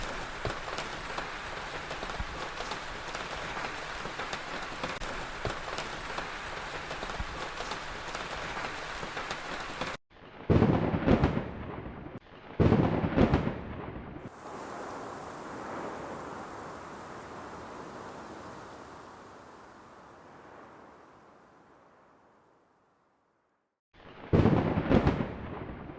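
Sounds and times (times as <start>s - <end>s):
heavy rain falling: 0.0s - 10.0s, 14.3s - 22.3s
thunder claps: 0.0s - 19.2s, 24.3s - 25.9s.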